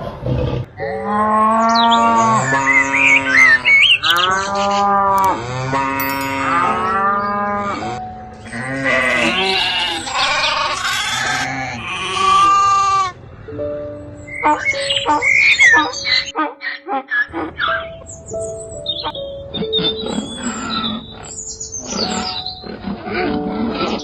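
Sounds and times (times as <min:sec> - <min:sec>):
livestock bleating: 0:08.5 - 0:13.1.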